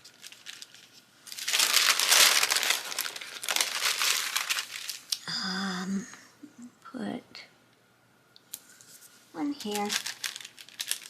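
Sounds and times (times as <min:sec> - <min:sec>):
sticker sheets crinkling: 0:00.0 - 0:05.2, 0:09.4 - 0:11.0.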